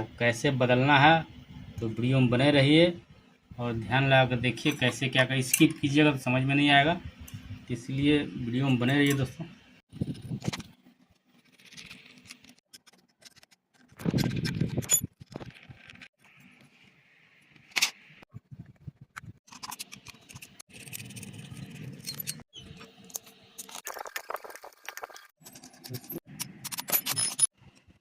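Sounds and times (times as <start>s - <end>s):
metal parts clattering: 25.4s - 27.5s
small metal parts clinking: 25.4s - 27.5s.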